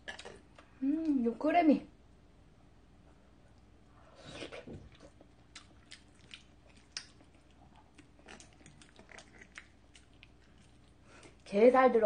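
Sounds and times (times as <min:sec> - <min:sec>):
wet chewing sounds: 0:03.5 - 0:11.5.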